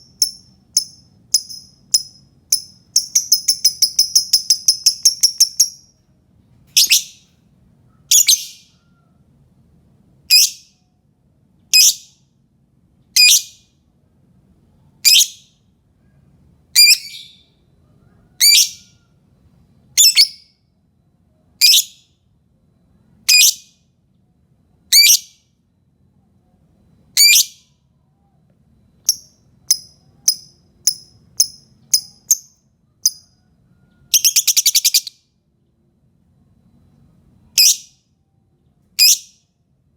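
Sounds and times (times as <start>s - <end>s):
lovebird calls: 0.0s - 5.8s, 6.8s - 7.2s, 7.9s - 9.0s, 29.1s - 35.2s
bird chirps and trill: 0.0s - 6.0s, 6.7s - 9.1s, 10.3s - 10.8s, 11.7s - 12.3s, 13.2s - 13.7s, 15.0s - 19.1s, 19.9s - 20.6s, 21.6s - 22.2s, 23.3s - 23.8s, 24.9s - 25.5s, 27.2s - 28.4s, 29.0s - 35.3s, 37.4s - 38.1s, 38.9s - 39.5s.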